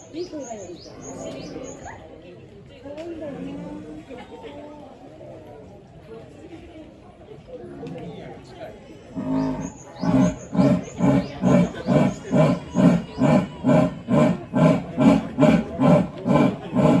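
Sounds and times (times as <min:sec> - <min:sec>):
large animal deep grunting: 0:09.2 - 0:17.0.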